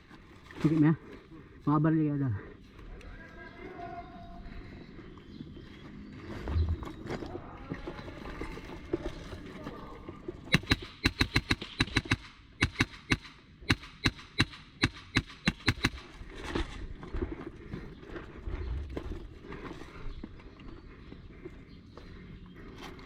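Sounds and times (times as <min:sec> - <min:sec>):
low rumble: 0:18.2 - 0:19.5.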